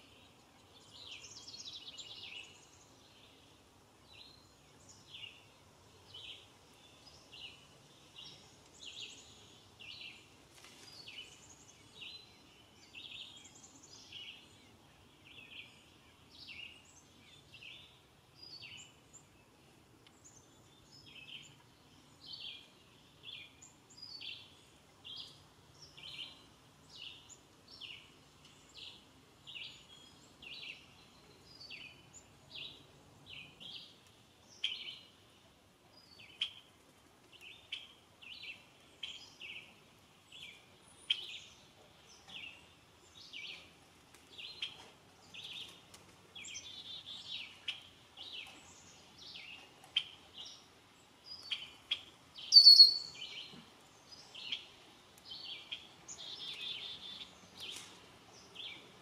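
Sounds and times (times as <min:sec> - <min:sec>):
bird chirping: 0:10.9 - 0:36.7, 0:37.3 - 0:59.0
loud high bird call: 0:52.5 - 0:53.2.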